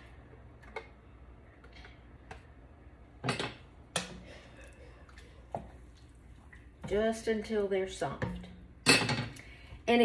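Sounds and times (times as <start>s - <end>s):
low steady hum: 0.0s - 10.0s
cookware clanking: 3.2s - 4.3s, 8.8s - 9.4s.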